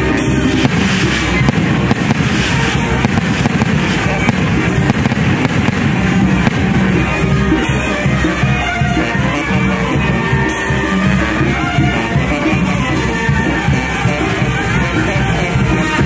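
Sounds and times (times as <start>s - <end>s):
music: 0.0s - 16.0s
fireworks crackling and popping: 0.3s - 7.9s.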